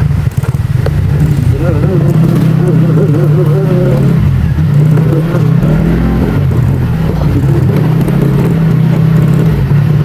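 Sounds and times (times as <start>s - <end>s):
scooter engine running: 0.0s - 10.0s.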